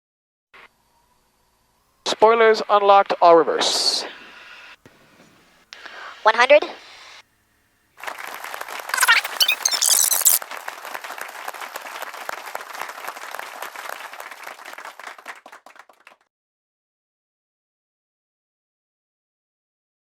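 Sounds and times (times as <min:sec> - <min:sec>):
dense fast applause: 0:08.0 - 0:16.3
high shrill sounds: 0:09.0 - 0:10.4.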